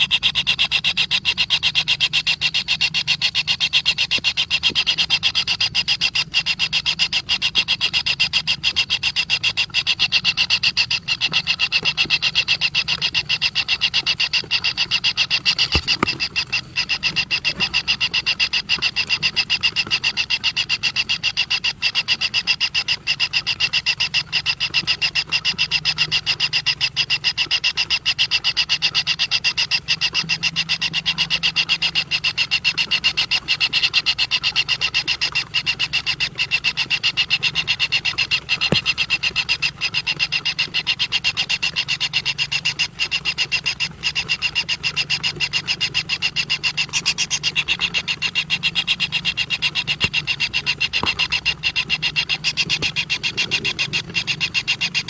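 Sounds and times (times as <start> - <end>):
pulsing animal chorus: 0.0 - 55.0.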